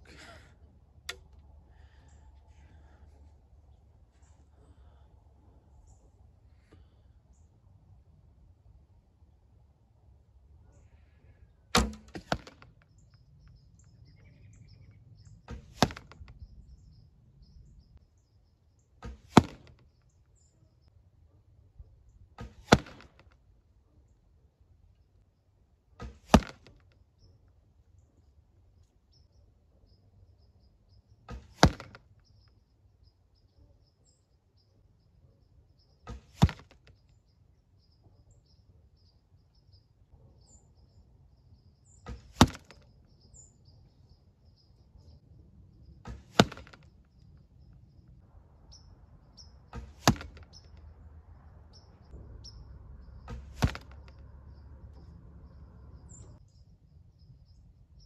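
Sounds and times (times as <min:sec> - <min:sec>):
birds chirping faintly: 0:00.0 - 0:58.0
arrow smacking target: 0:11.8 - 0:12.9, 0:15.5 - 0:16.4, 0:19.0 - 0:19.8, 0:22.4 - 0:23.4, 0:26.0 - 0:26.8, 0:31.3 - 0:32.1, 0:36.0 - 0:36.9, 0:42.0 - 0:42.8, 0:46.0 - 0:46.9, 0:49.7 - 0:50.8, 0:53.2 - 0:54.2.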